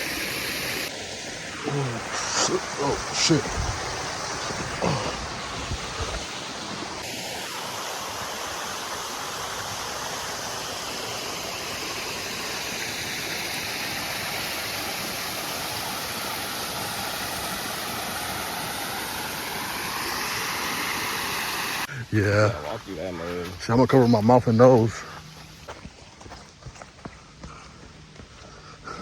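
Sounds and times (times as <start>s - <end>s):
water rushing: 0.0s - 25.6s.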